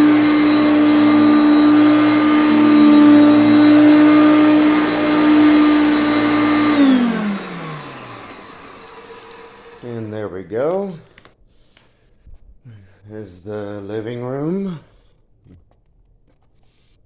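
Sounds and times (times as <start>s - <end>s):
vacuum cleaner running: 0.0s - 11.2s.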